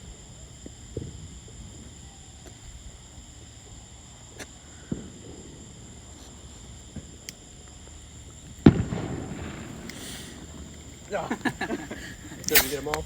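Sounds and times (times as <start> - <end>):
insects chirping: 0.0 - 13.0
distant pops: 7.0 - 13.0
loud firework bang: 8.6 - 13.0.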